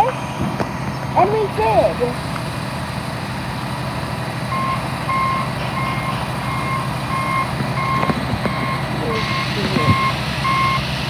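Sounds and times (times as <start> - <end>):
diesel engine running: 0.0 - 11.0
reversing alarm beeping: 4.4 - 11.0.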